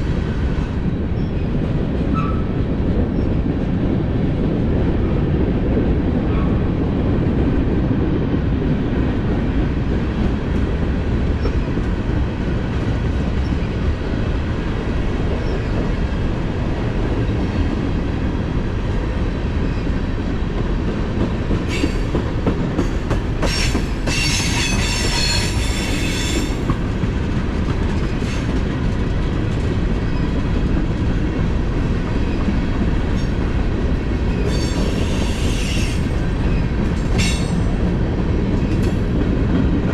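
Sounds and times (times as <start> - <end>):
freight train cars rolling: 0.0 - 39.9
steel wheels squealing on rail: 0.2 - 3.4, 19.6 - 20.0, 21.6 - 26.7, 28.0 - 28.6, 30.0 - 30.4, 34.3 - 37.8.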